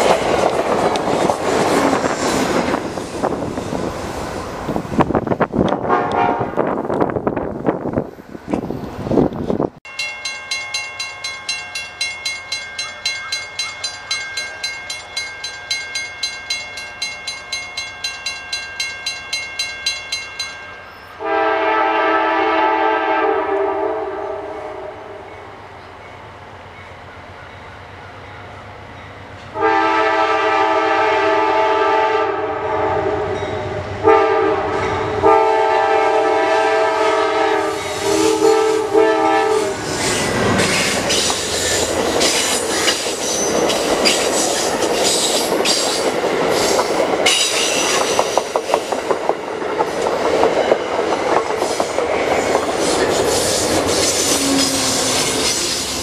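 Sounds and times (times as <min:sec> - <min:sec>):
wheels clicking over rail joints: 0:00.0 - 0:03.5, 0:39.9 - 0:56.0
diesel locomotive passing: 0:00.0 - 0:56.0
train horn blasts: 0:05.8 - 0:06.8, 0:21.2 - 0:25.4, 0:29.5 - 0:39.9, 0:54.2 - 0:55.6.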